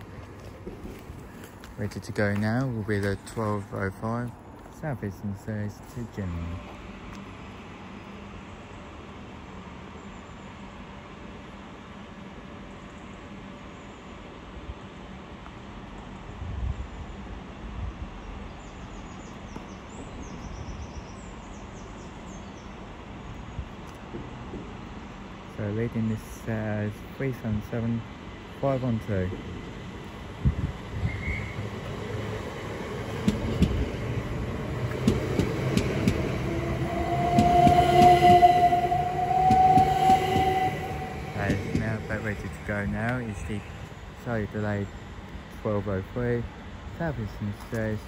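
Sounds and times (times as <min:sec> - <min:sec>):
train motor whine: 0:30.5 - 0:44.0
train wheels clicking over rail joints: 0:31.6 - 0:43.2.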